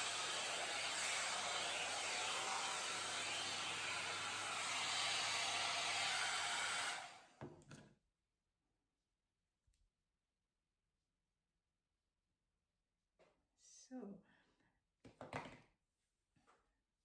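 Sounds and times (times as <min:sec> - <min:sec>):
hot-air brush blowing: 0:00.0 - 0:07.3.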